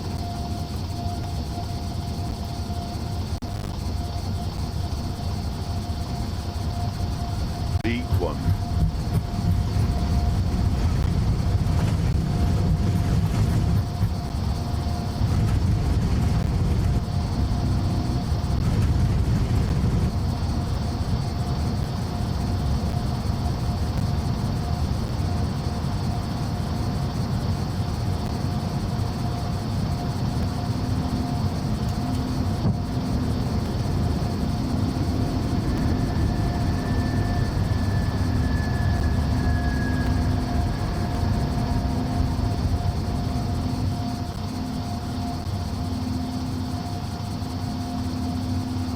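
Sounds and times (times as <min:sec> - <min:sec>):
jet engine rumble and whine: 0:00.0 - 0:48.9
steady tones: 0:07.7 - 0:14.5.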